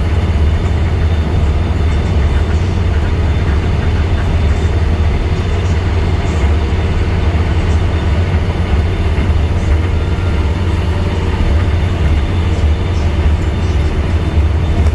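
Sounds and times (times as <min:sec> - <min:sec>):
bus diesel engine rumbling: 0:00.0 - 0:14.9.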